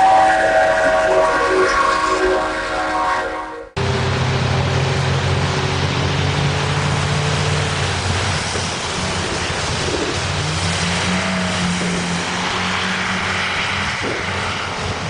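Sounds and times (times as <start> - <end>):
heavy vehicle engine droning: 3.7 - 15.0
rush of wind-like noise: 3.8 - 15.0.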